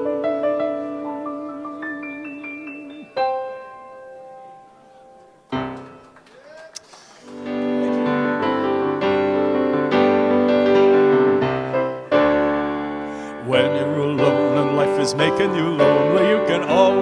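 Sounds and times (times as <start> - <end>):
piano-toned keyboard chords: 0.0 - 6.3, 7.3 - 17.0.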